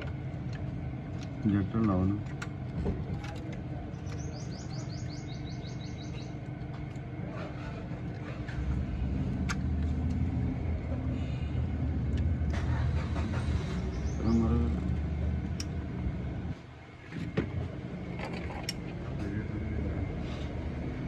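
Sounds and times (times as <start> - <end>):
vehicle engine running: 0.0 - 21.0
bird chirping: 4.0 - 6.4, 13.6 - 14.7.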